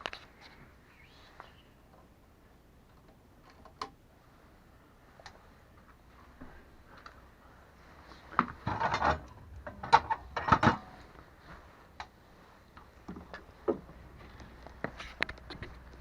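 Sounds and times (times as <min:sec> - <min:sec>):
knocks and scraping: 0:08.0 - 0:16.0.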